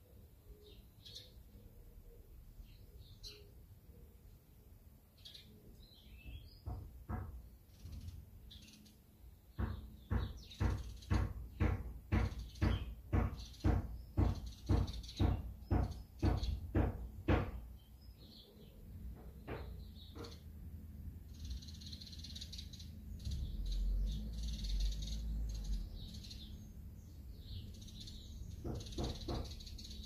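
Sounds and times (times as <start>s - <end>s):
faint bird chirps: 0.0s - 6.8s, 7.7s - 9.4s, 21.3s - 30.0s
sharp knocks: 6.2s - 8.0s, 9.5s - 17.8s, 19.0s - 20.6s, 28.5s - 30.0s.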